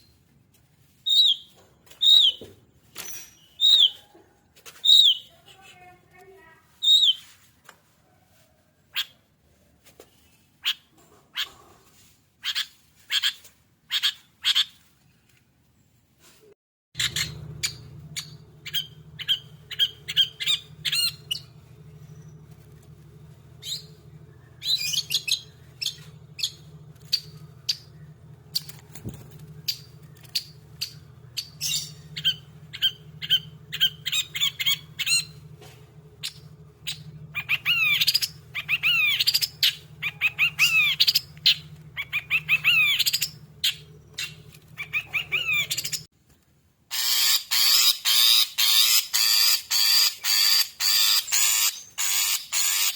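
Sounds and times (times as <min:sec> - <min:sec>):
bird singing sharp chirps: 0:04.8 - 0:05.4, 0:17.0 - 0:46.1
steady low hum: 0:17.0 - 0:46.1.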